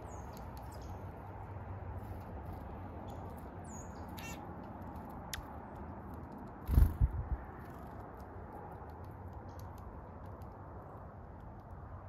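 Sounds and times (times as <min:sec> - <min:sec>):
birds chirping: 0:00.0 - 0:05.4.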